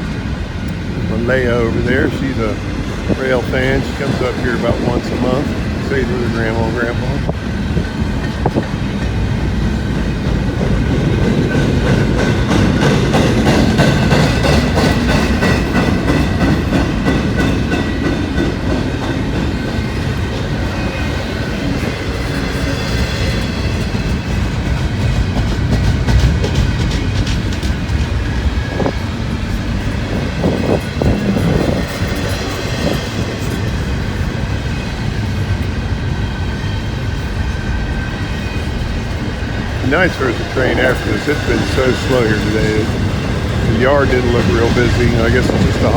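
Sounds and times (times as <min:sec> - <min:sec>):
wheels clicking over rail joints: 0:00.0 - 0:35.9
train wheels rumbling on rails: 0:00.0 - 0:45.9.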